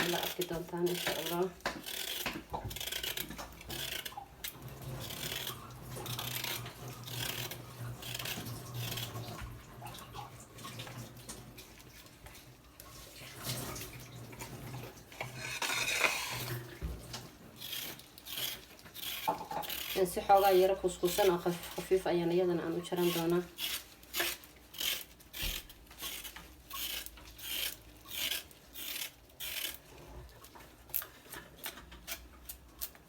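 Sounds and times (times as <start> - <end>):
vegetables rubbing and scraping: 0.0 - 4.2, 4.8 - 9.4, 15.2 - 16.6, 17.6 - 30.3.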